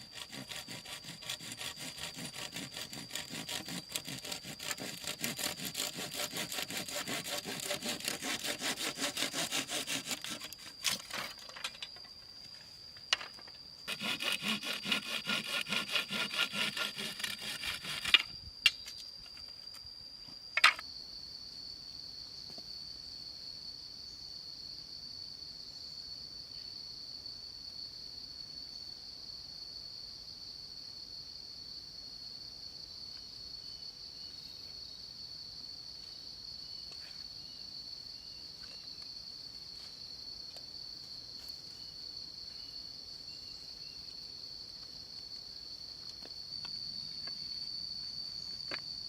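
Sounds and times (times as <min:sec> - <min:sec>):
hand saw cutting wood: 0:00.0 - 0:11.3, 0:13.9 - 0:18.2
high insect drone: 0:00.0 - 0:49.0.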